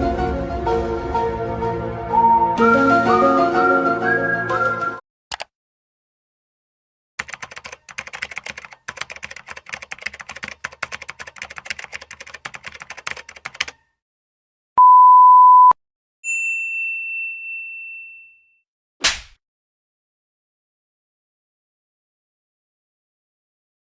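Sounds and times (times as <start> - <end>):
computer keyboard typing: 5.3 - 5.5, 7.2 - 13.8
steady beep tone: 14.8 - 15.8
high bell ding: 16.2 - 18.6.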